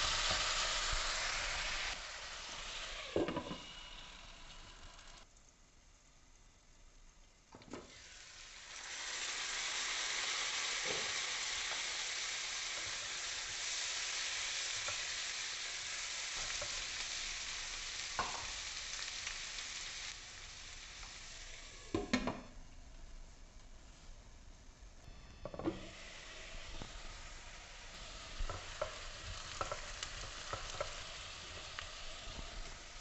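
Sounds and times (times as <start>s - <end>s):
potatoes sizzling in oil: 0.0s - 22.7s, 25.2s - 33.0s
spatula tapping pan: 28.4s - 32.4s.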